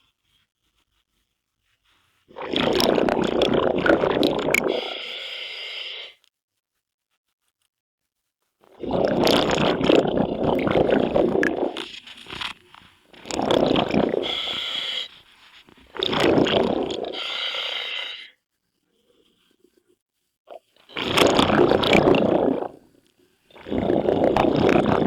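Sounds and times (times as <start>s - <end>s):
air bubbling from regulator: 2.3s - 5.0s, 8.7s - 12.0s, 13.1s - 15.1s, 15.7s - 17.4s, 20.5s - 22.9s, 23.5s - 25.0s.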